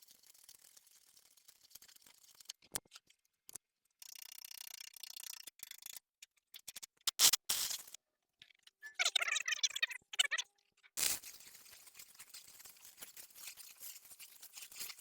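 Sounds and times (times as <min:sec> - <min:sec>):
high-pitched welding arc crackle: 0:07.2 - 0:08.0, 0:11.0 - 0:11.4
loud short welding bursts: 0:11.0 - 0:11.2.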